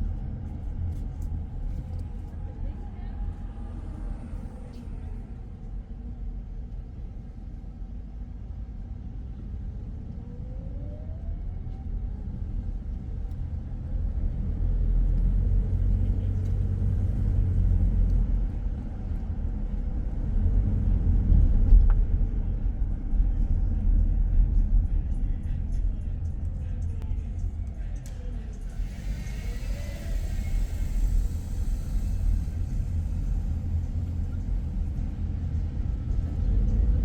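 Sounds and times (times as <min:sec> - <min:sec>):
car engine rumble: 0:00.0 - 0:37.0
road noise: 0:09.4 - 0:37.0
rising whine: 0:28.3 - 0:37.0.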